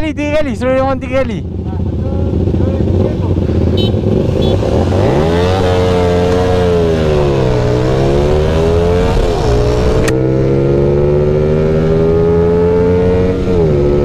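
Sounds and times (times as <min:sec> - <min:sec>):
motorcycle engine accelerating: 0:00.6 - 0:14.0
sharp click: 0:10.0 - 0:10.2.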